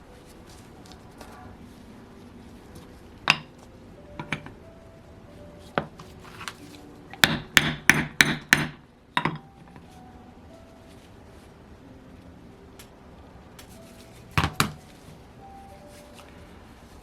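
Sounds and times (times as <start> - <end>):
hammer tapping on metal: 7.1 - 9.4.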